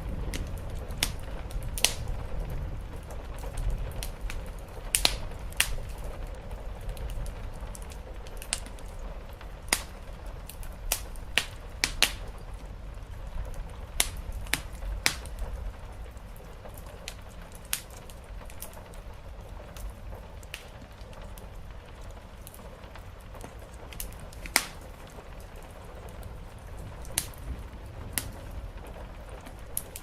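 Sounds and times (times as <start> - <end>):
soft steady rain: 0.0 - 30.0
wood fire crackling and popping: 0.0 - 30.0.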